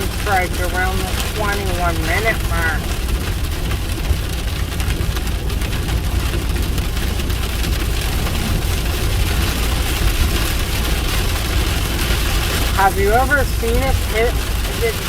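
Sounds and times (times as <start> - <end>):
car driving rumble: 0.0 - 15.0
heavy rain on vehicle: 0.0 - 15.0.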